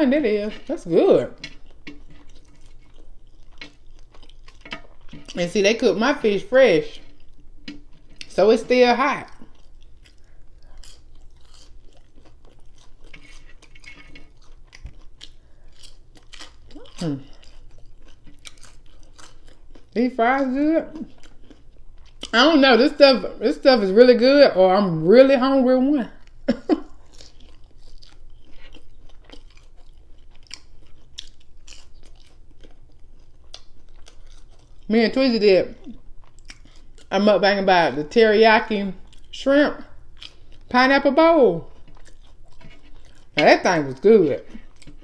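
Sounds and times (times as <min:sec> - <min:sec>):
person chewing: 0:00.2 - 0:22.8, 0:26.1 - 0:37.2, 0:37.9 - 0:45.0
person crunching fries: 0:00.5 - 0:05.5, 0:09.2 - 0:22.4, 0:26.2 - 0:37.2, 0:39.0 - 0:39.4, 0:40.0 - 0:40.8, 0:41.6 - 0:45.0.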